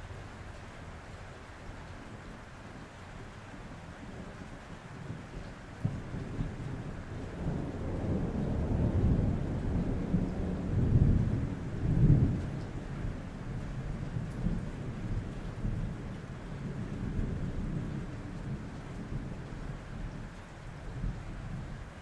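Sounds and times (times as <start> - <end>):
rain on a roof: 0.0 - 22.0
rolling thunder: 5.8 - 19.9.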